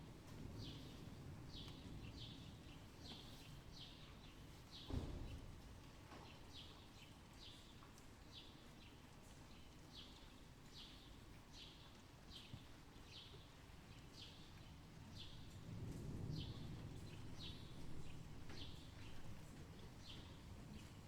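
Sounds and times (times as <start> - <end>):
low outdoor rumble: 14.6 - 21.0.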